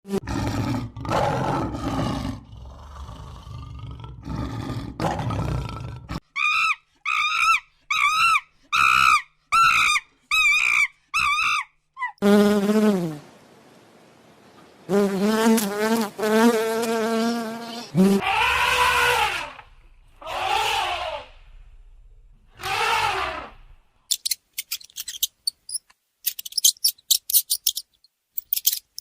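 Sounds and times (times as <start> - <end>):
animal roaring: 0.1 - 6.2, 20.2 - 21.3, 22.6 - 23.7.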